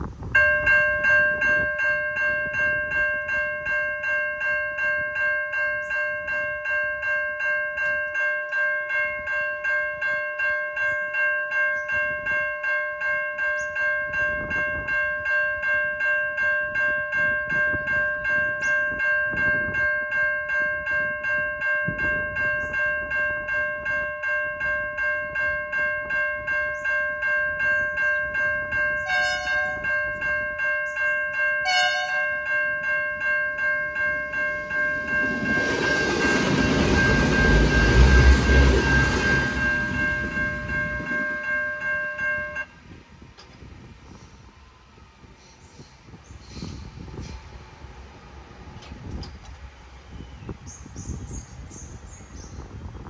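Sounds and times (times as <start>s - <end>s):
level crossing bells ringing: 0.4s - 42.7s.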